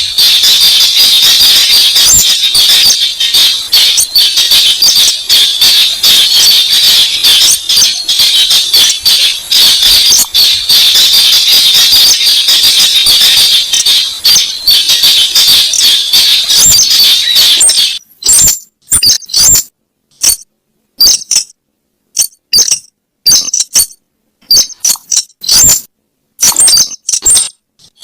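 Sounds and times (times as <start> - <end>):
bird calls clicking and rattling: 21.0 - 21.6, 22.2 - 28.0.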